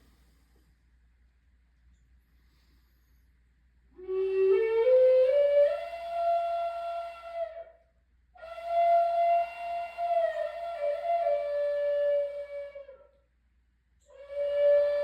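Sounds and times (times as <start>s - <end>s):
flute playing slow melody: 4.0s - 7.8s, 8.4s - 13.2s, 14.0s - 15.0s.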